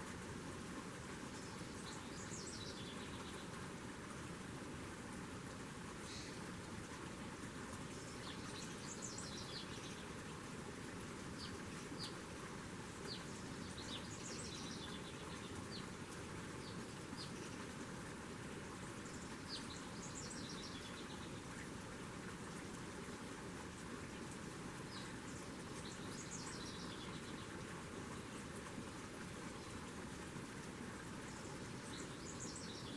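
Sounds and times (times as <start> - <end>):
steady background hiss: 0.0 - 32.9
songbirds trilling: 6.1 - 6.4, 13.0 - 17.8, 24.8 - 29.7, 31.2 - 32.9.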